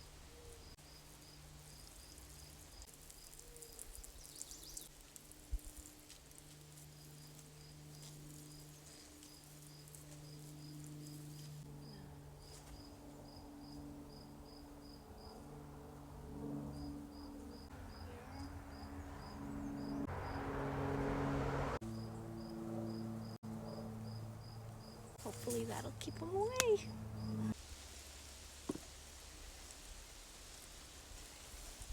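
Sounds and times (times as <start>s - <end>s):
cricket chirping: 0.6s - 4.9s, 7.0s - 11.6s, 12.4s - 15.4s, 16.7s - 20.5s, 21.9s - 25.1s.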